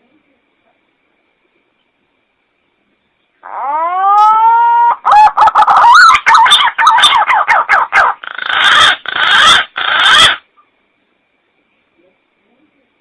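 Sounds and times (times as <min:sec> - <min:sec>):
green pigeon whistling call: 0:03.5 - 0:10.4.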